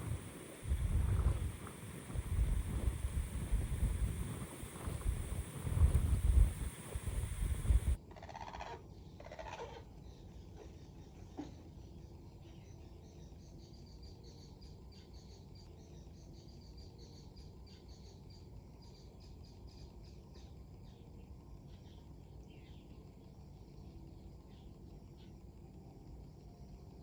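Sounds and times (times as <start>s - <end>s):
wind rumbling on microphone: 0.0s - 8.0s.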